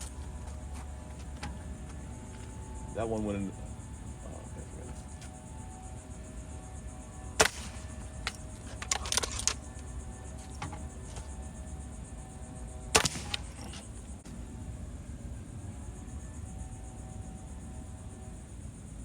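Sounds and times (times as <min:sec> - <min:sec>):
clattering rattle: 0:07.4 - 0:11.7, 0:12.9 - 0:14.2.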